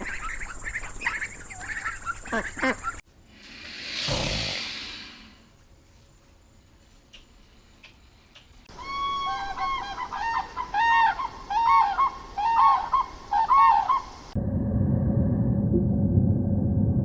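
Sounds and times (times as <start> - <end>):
goose honking: 0.0 - 3.0
loud low rumbling: 14.4 - 17.0.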